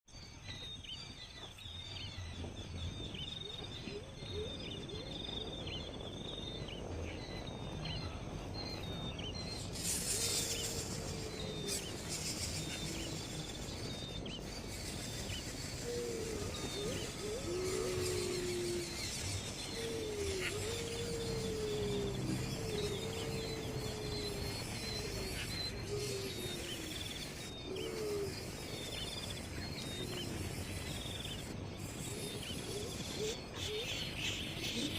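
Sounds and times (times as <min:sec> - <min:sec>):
birds chirping high: 0:00.1 - 0:34.9
lower sliding bird calls: 0:07.2 - 0:34.9.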